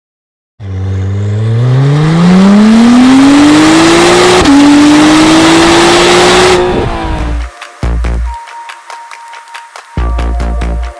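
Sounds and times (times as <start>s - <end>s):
car engine accelerating hard: 0.6s - 7.4s.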